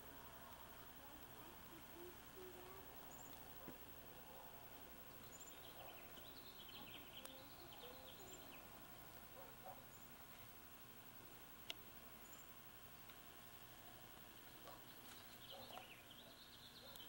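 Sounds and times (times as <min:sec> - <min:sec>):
birds chirping: 0:00.0 - 0:17.0
faint outdoor ambience: 0:00.0 - 0:17.0.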